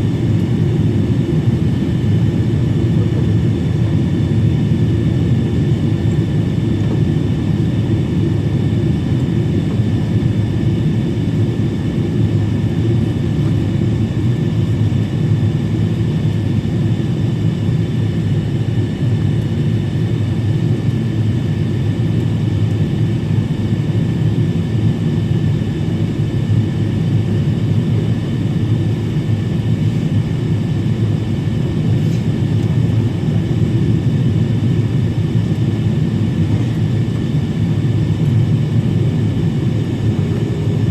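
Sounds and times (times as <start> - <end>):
airliner engines and airflow rumble: 0.0 - 40.9.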